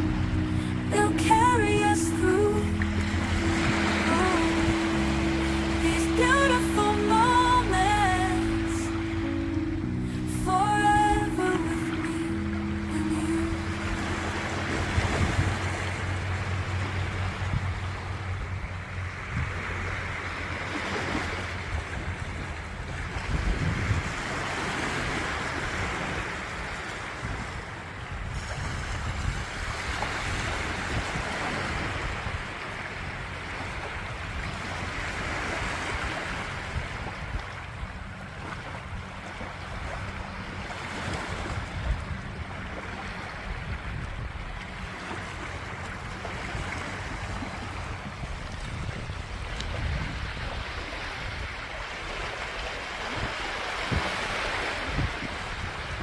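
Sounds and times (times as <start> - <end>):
surf washing in: 0.0 - 56.0
wind rumbling on microphone: 12.3 - 56.0.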